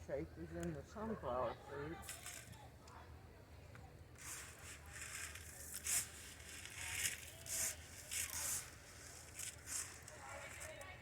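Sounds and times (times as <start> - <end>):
grain rustling when poured: 4.2 - 10.8.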